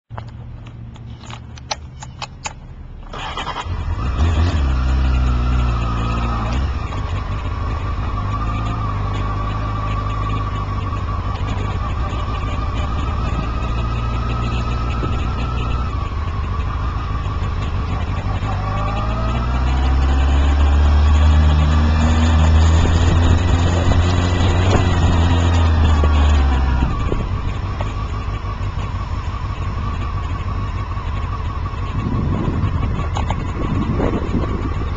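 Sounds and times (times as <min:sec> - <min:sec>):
clicks: 0:00.1 - 0:02.7
road noise: 0:00.1 - 0:34.9
car engine accelerating: 0:03.1 - 0:34.9.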